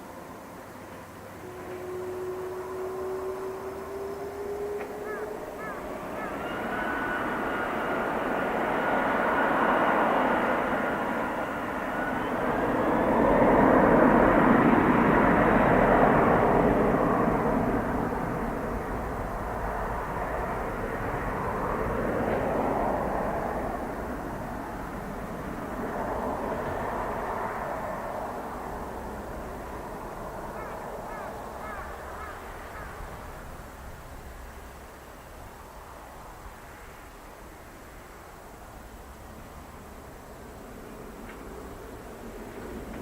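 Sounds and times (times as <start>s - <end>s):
jet engines roaring and whining: 0.0s - 34.4s.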